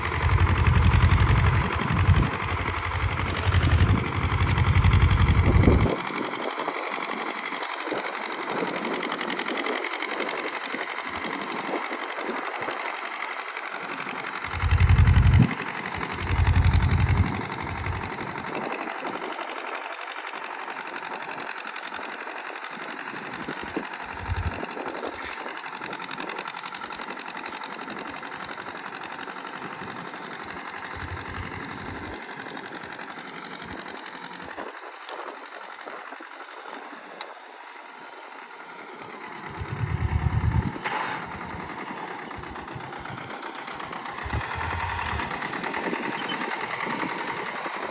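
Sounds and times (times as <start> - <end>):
tractor diesel engine clattering: 0.0 - 47.9
loud low rumbles: 39.5 - 41.6, 44.2 - 45.5.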